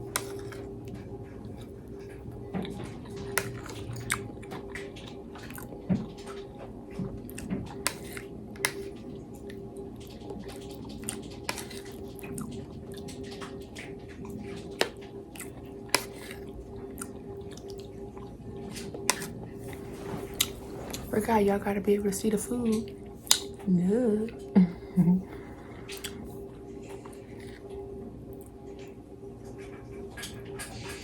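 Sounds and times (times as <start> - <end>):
person chewing: 0.0 - 6.5, 7.2 - 21.0, 23.2 - 23.6, 25.3 - 29.0
steady low hum: 0.0 - 31.0.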